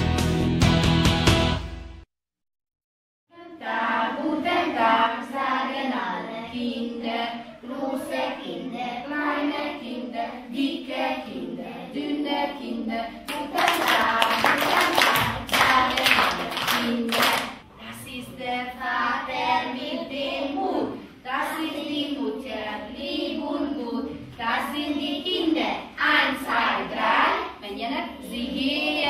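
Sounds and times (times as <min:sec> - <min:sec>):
children singing together: 0:03.3 - 0:17.6, 0:18.5 - 0:29.0
children clapping: 0:13.3 - 0:17.6.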